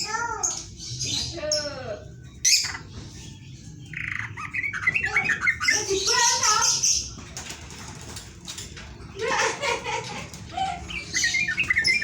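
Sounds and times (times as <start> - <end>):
bird chattering squawks and chirps: 2.4 - 3.0, 3.9 - 7.1, 10.8 - 12.0.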